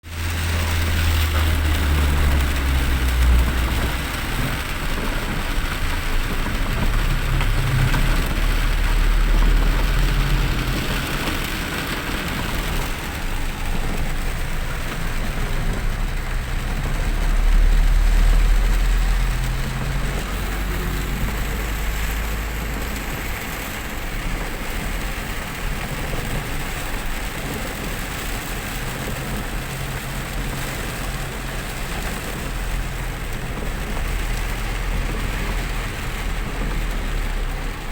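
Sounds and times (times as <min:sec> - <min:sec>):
engine and road rumble: 0:00.0 - 0:37.9
rain hiss and tyre spray: 0:00.0 - 0:37.9.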